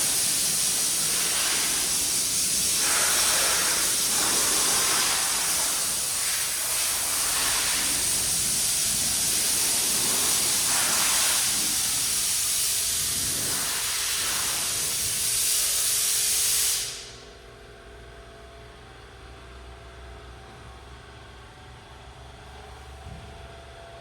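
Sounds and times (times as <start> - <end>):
rushing air hiss: 0.0 - 17.2.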